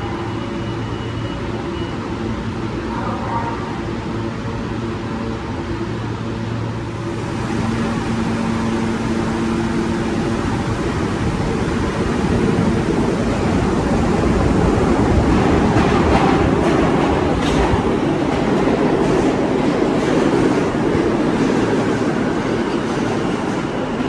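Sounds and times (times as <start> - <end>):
train rumble: 0.0 - 24.0
low hum tones: 6.7 - 14.4.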